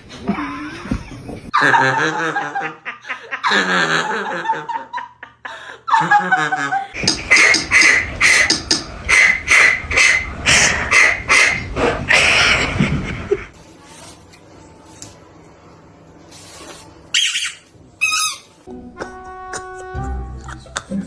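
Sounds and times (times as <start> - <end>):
person laughing: 12.1 - 13.5, 19.0 - 21.0.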